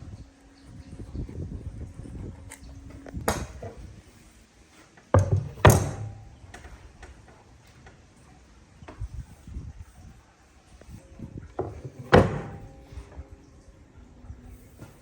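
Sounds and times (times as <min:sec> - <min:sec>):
knocks in a workshop: 0:05.1 - 0:06.4, 0:11.6 - 0:13.0.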